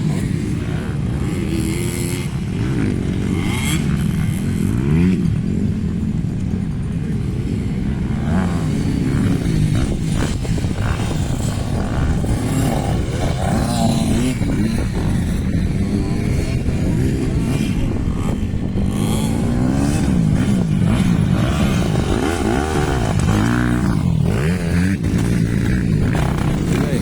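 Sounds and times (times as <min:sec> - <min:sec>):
dirt bike engines revving: 0:00.0 - 0:27.0.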